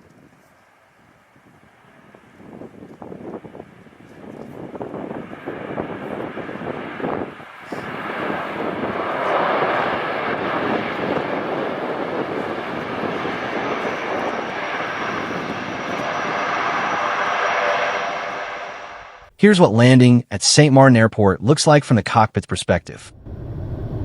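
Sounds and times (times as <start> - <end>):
turboprop engines running: 0.1 - 19.4
thin high whine: 5.7 - 19.3.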